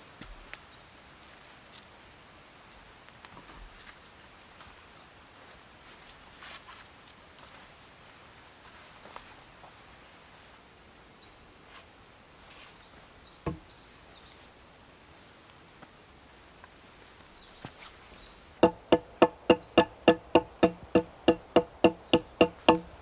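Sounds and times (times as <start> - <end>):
small birds chirping: 16.7 - 20.1
sharp knocks: 18.6 - 23.0.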